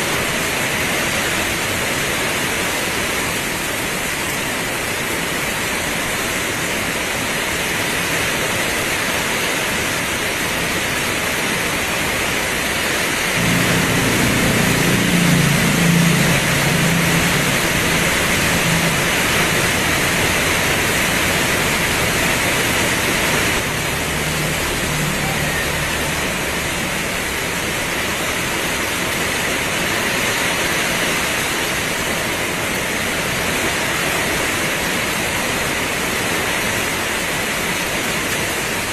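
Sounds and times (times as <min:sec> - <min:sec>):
heavy rain pouring: 0:00.0 - 0:38.9
low hum with pitched tones: 0:13.4 - 0:22.5.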